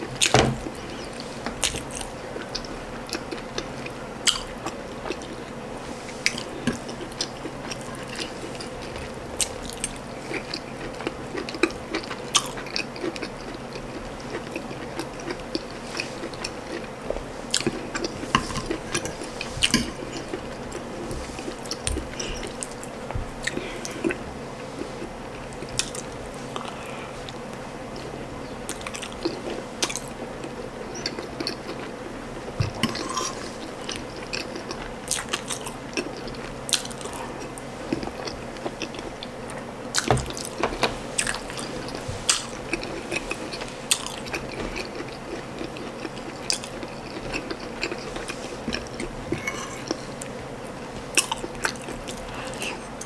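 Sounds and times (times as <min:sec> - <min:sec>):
close chewing: 0:00.0 - 0:40.6, 0:41.2 - 0:53.0.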